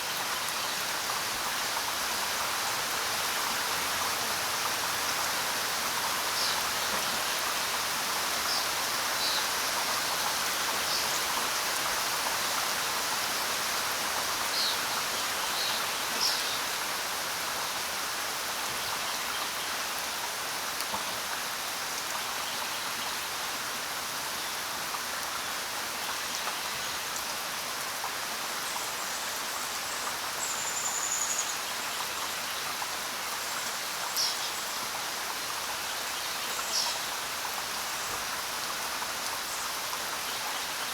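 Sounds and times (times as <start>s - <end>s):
rain falling on ground: 0.0s - 40.9s.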